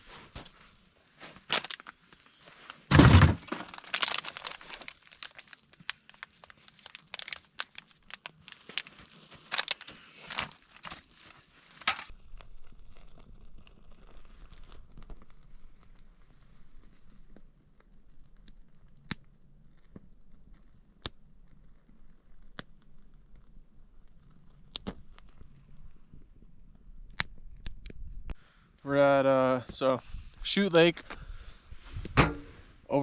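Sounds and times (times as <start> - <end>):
sharp snaps and crinkling: 0.0 - 32.4
heavy thunk: 2.9 - 3.4, 32.2 - 32.6.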